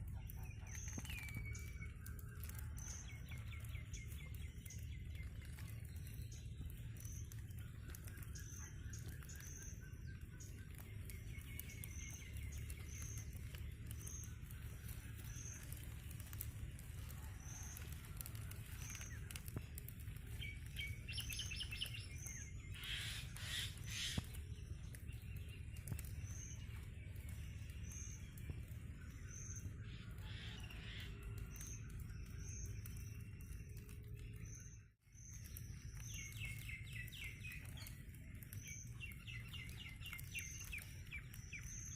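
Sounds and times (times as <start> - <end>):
birds trilling: 0.0 - 34.6, 35.4 - 41.9
steady low rumble: 0.0 - 41.6
bird chirping: 0.0 - 41.9.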